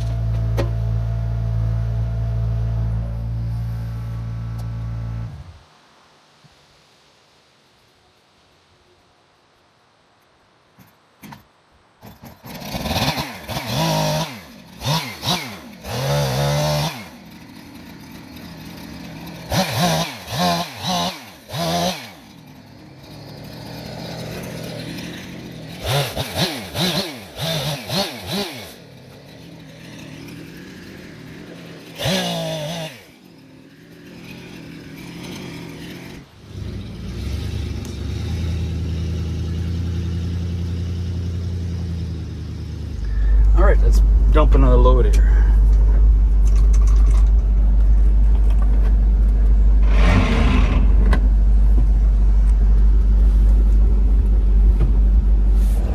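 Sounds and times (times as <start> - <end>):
chainsaw revving: 0.0 - 5.6, 12.2 - 47.9, 48.5 - 52.7
deeper engine running: 0.0 - 5.6, 28.7 - 55.9.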